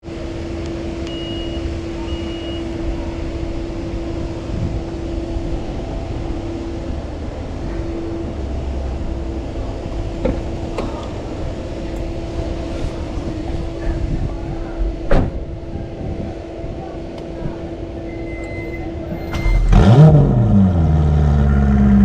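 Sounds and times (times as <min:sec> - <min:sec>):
car engine idling at low revs: 0:00.1 - 0:22.0
short high beeps: 0:01.1 - 0:02.6, 0:18.1 - 0:19.7.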